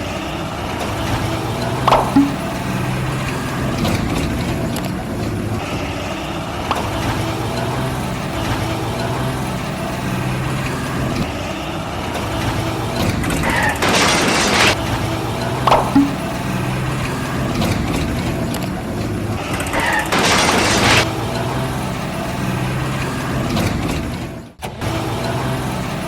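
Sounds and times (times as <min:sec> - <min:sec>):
truck engine running: 0:00.0 - 0:26.0.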